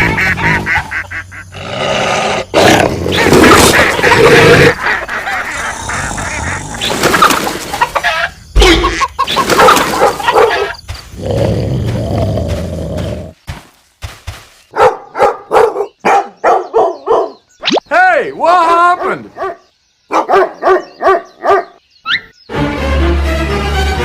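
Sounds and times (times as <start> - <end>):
animal calls: 0.0 - 13.4
dog barking: 9.9 - 10.8, 14.7 - 17.4, 19.0 - 21.8.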